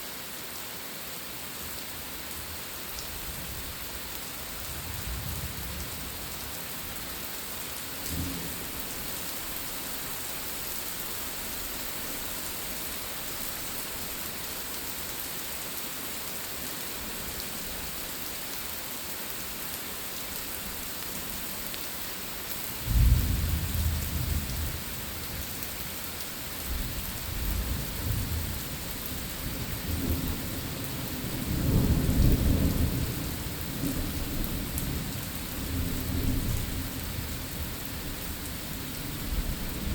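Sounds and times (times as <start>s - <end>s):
heavy rain hissing: 21.2s - 39.9s.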